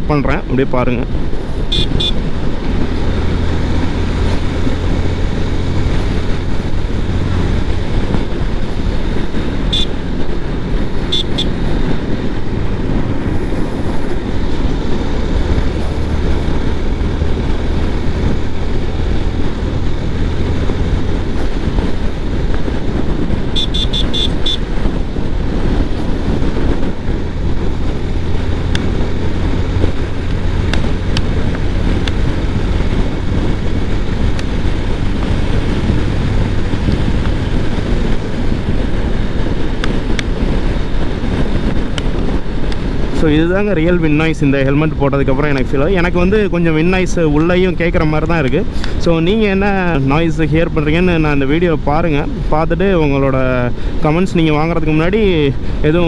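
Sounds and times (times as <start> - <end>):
wind rush inside helmet: 0.0 - 56.0
short high beeps: 1.7 - 2.2, 11.1 - 11.7.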